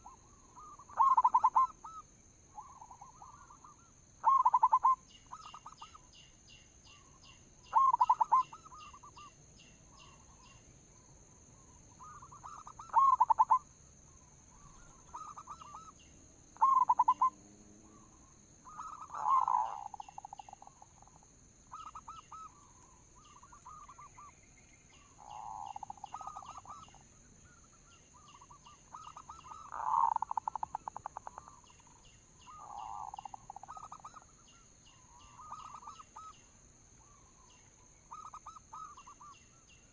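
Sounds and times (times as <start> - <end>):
doves cooing in trills: 0.0 - 2.0, 2.6 - 6.0, 7.7 - 9.3, 12.0 - 13.6, 14.6 - 16.0, 16.6 - 24.3, 25.2 - 27.0, 28.2 - 31.7
small birds chirping: 0.0 - 39.9.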